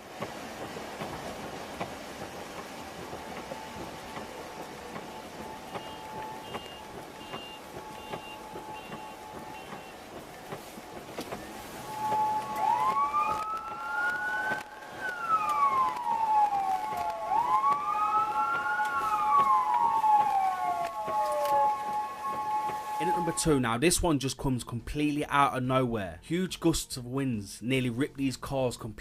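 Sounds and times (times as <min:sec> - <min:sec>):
steady siren tone: 0:00.0 - 0:23.8
siren wailing: 0:01.8 - 0:23.8.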